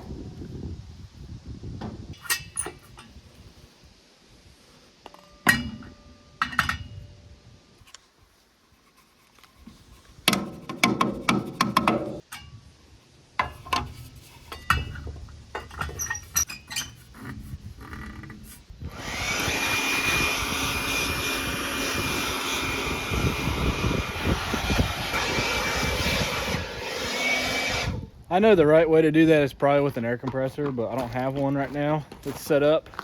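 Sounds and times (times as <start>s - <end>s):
leaf blower whining: 18.8s - 28.1s.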